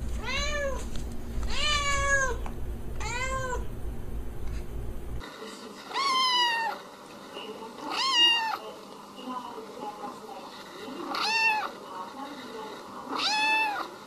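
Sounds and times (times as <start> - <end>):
cat meowing: 0.2 - 0.8, 1.5 - 2.4, 3.0 - 3.7, 5.9 - 6.8, 7.9 - 8.6, 11.1 - 11.7, 13.1 - 13.9.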